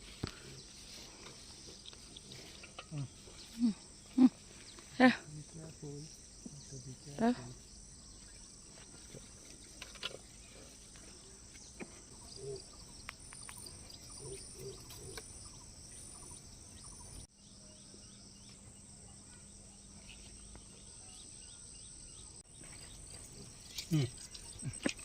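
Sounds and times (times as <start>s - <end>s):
plants rustling and clicking: 0.0s - 7.6s, 8.2s - 15.6s, 22.6s - 25.0s
insects chirring: 0.0s - 25.0s.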